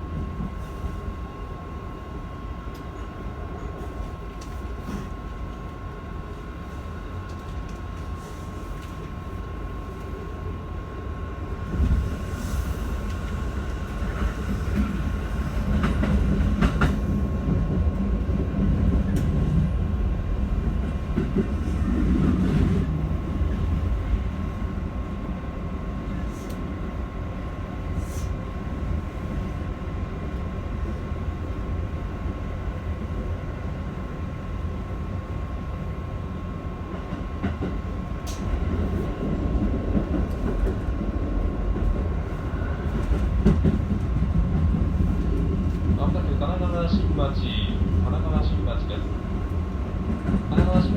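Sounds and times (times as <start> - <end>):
train wheels rumbling on rails: 11.2 - 50.9.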